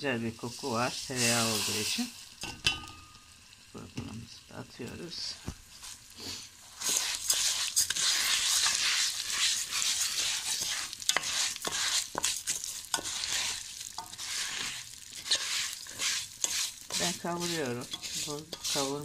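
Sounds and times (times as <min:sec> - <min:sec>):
grain sizzling in butter: 0:00.1 - 0:19.0
spoon scraping a pot: 0:06.8 - 0:19.0.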